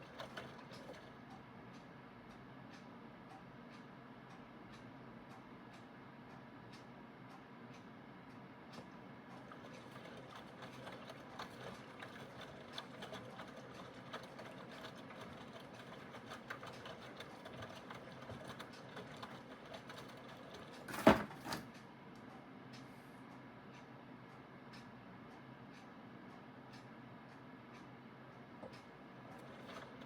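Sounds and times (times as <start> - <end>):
washing machine motor hum: 0.0 - 1.3, 8.9 - 21.7, 28.5 - 30.0.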